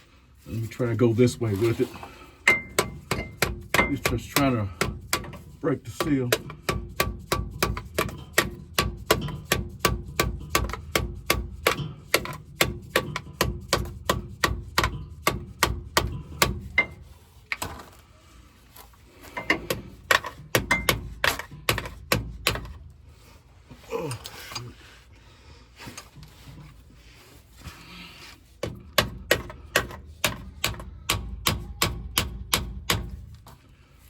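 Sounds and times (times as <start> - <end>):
rapid hammer blows on metal: 2.5 - 17.2, 28.6 - 33.3.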